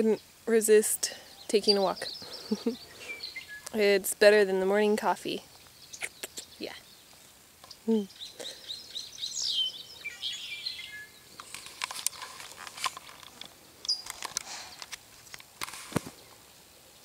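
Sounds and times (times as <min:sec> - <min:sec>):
rustles: 0:00.0 - 0:17.0
songbirds chirping: 0:00.0 - 0:17.0
bird trill: 0:07.7 - 0:11.3.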